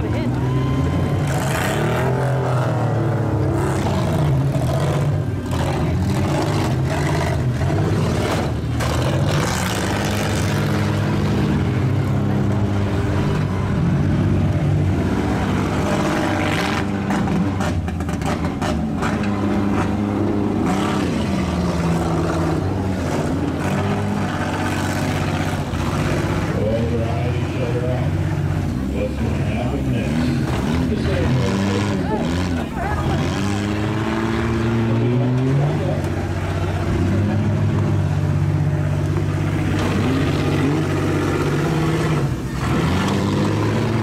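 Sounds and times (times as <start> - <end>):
minivan engines revving: 0.0 - 44.0.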